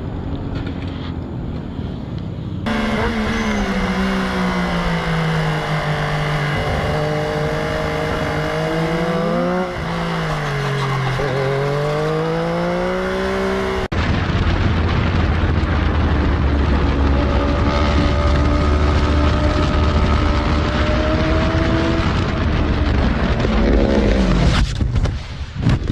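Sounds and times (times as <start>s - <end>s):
low drone with rushing noise: 0.0s - 25.6s
motorcycle engine revving: 2.6s - 14.0s, 15.6s - 24.6s.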